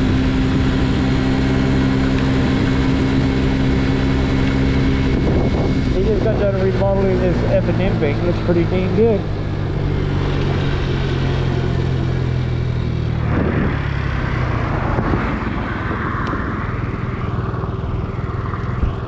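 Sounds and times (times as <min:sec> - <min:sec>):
scooter engine running: 0:00.0 - 0:19.0
wind and road noise: 0:00.0 - 0:19.0.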